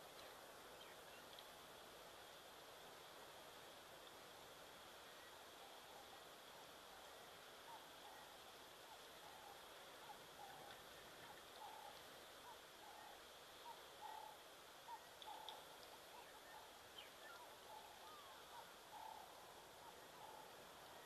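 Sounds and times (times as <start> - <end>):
bird calls: 5.2 - 21.0.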